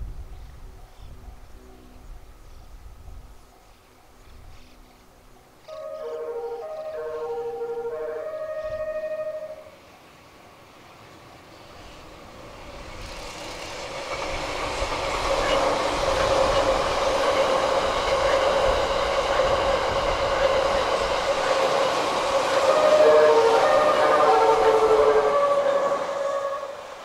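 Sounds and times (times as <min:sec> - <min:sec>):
train passing: 0:00.0 - 0:27.0
train horn playing a tune: 0:05.7 - 0:09.8, 0:21.3 - 0:27.0.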